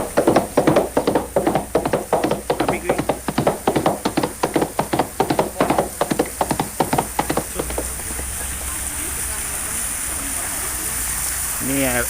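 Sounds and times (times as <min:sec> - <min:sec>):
sharp wooden knocks and clacks: 0:00.0 - 0:08.7
steady rushing noise: 0:00.0 - 0:08.8.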